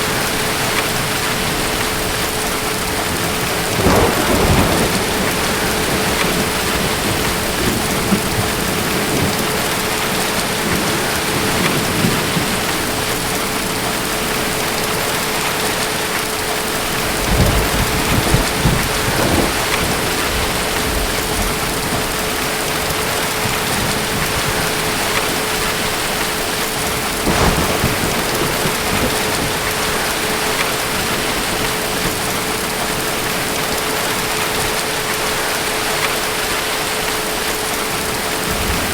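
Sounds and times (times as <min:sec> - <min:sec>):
distant thunder rumbles: 0:00.0 - 0:36.6
heavy rain falling: 0:00.0 - 0:38.9.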